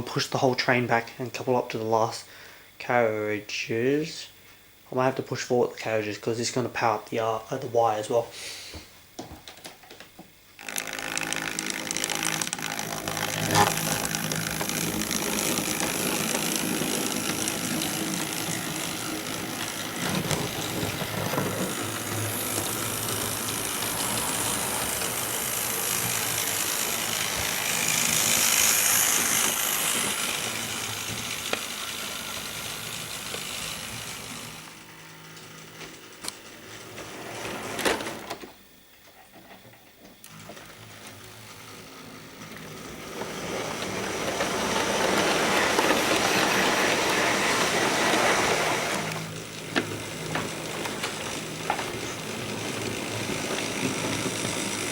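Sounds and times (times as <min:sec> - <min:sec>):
model train motor whirring: 0:10.5 - 0:38.9, 0:40.2 - 0:54.9
mechanical rattle: 0:10.6 - 0:38.6, 0:40.2 - 0:54.9.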